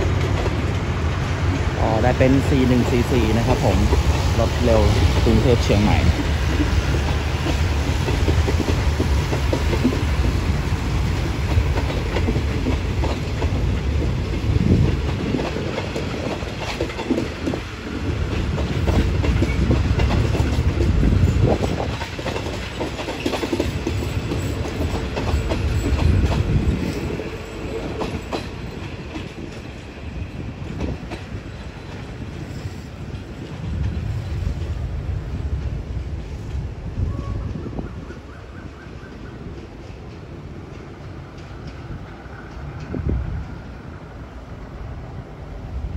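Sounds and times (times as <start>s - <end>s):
wheels clacking over rail joints: 0.0s - 36.7s
train coaches rumbling: 0.0s - 45.9s.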